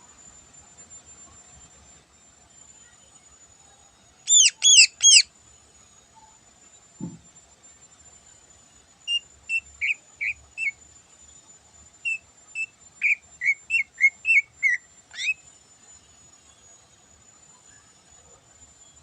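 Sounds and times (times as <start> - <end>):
bird whistling song: 4.3 - 5.3, 9.1 - 10.8, 12.0 - 15.4.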